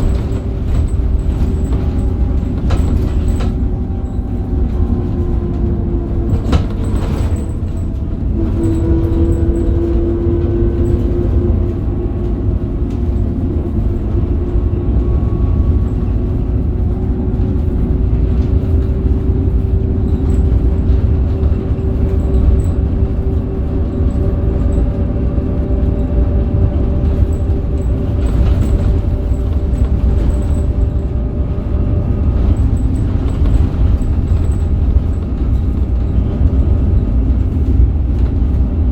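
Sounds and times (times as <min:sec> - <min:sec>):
knocks and rattles: 0:00.0 - 0:15.7
bus diesel engine droning: 0:00.0 - 0:38.9
rising engine whine: 0:00.0 - 0:38.9.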